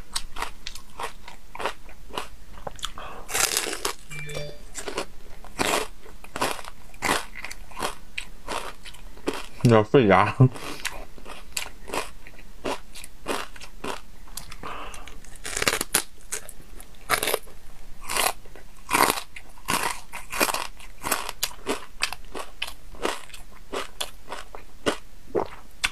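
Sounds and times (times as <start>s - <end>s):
wet chewing: 0.1s - 4.0s
crunching of crispy food: 0.1s - 4.1s, 5.4s - 25.9s.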